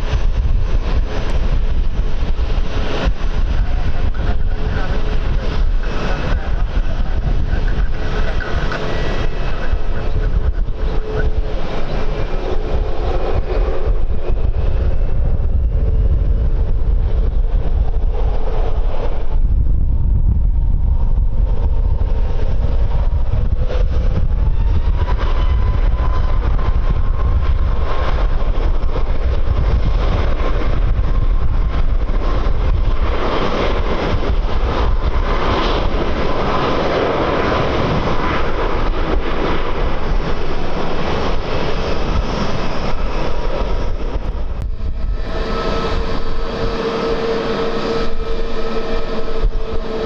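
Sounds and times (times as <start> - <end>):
jet engines rumbling: 0.0 - 50.0
wind buffeting microphone: 0.0 - 50.0
faint engine whine rising in pitch: 44.2 - 50.0.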